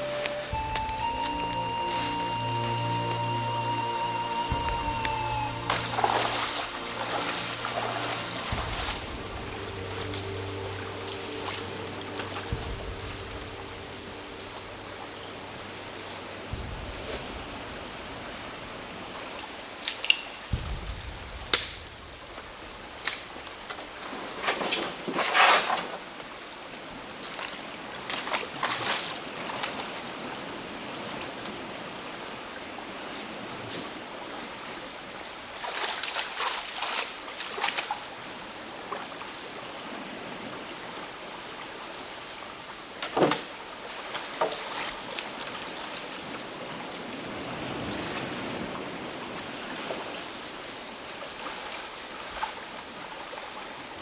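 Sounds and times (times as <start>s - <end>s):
water trickling: 0.0s - 22.4s
water dripping: 0.0s - 23.8s
paddle strokes splashing: 3.9s - 19.6s, 35.6s - 38.2s.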